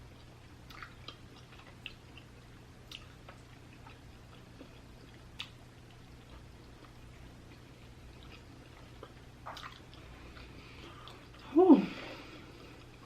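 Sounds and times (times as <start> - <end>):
person chewing food: 0.0 - 11.5, 12.1 - 13.0
low steady hum: 0.0 - 13.0
sharp mouth clicks and smacks: 2.9 - 4.0.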